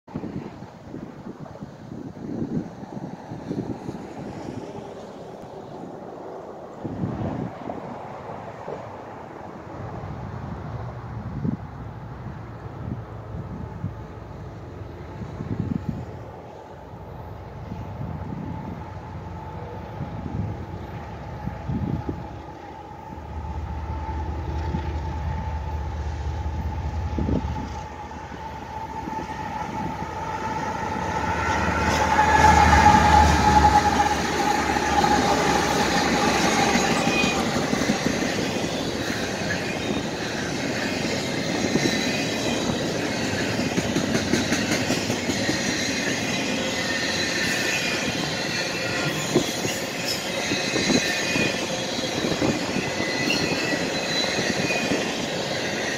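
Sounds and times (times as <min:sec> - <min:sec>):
wind buffeting microphone: 0:00.1 - 0:46.3, 0:48.0 - 0:55.9
diesel locomotives passing: 0:00.1 - 0:55.9
thin high wheel squeals: 0:44.9 - 0:55.9.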